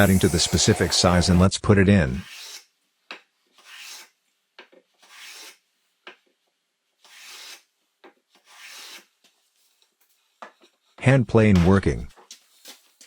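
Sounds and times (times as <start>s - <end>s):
hand plane shaving wood: 0.0s - 1.5s.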